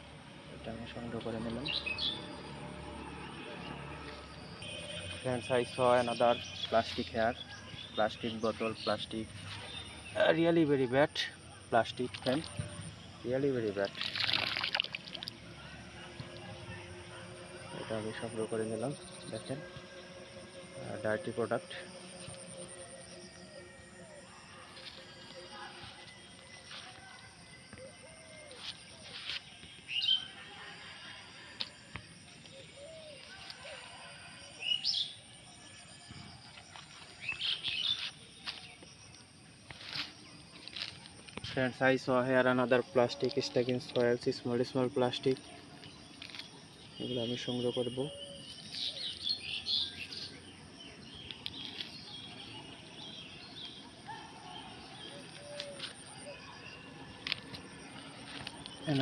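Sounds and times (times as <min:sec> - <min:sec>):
birds chirping: 0:00.0 - 0:59.0
faint high-pitched insect drone: 0:09.1 - 0:59.0
small birds chirping: 0:36.1 - 0:59.0.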